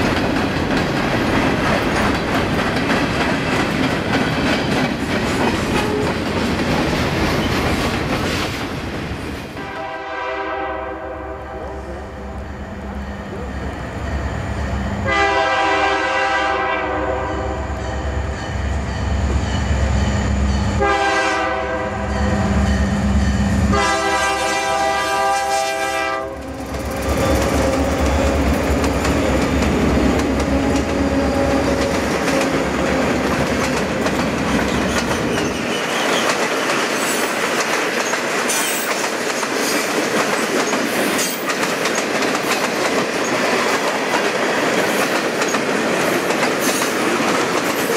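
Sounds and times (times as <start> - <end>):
locomotive air horn blasts: 9.6 - 11.8, 15.0 - 17.7, 20.8 - 22.5, 23.7 - 26.5.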